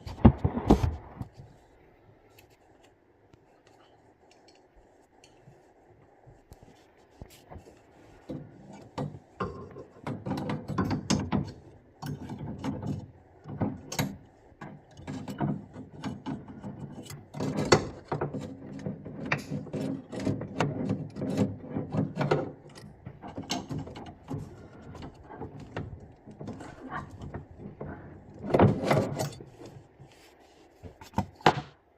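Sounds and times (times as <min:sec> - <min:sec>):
tools and metal fittings rattling: 0:08.3 - 0:29.9.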